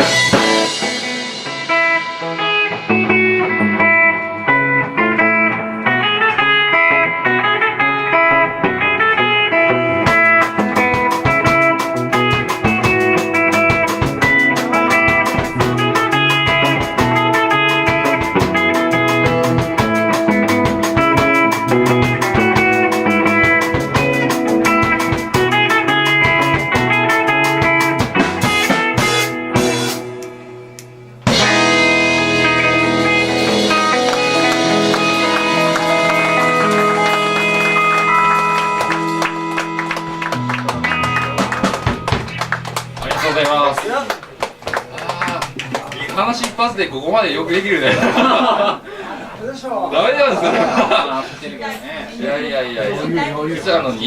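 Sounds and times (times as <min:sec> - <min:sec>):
electric guitar: 0:00.0 - 0:46.7
drum kit: 0:00.0 - 0:46.8.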